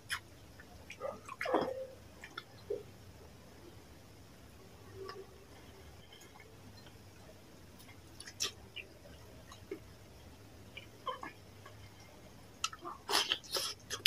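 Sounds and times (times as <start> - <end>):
wet chewing and lip-smacking: 0.0 - 2.9, 7.8 - 9.9.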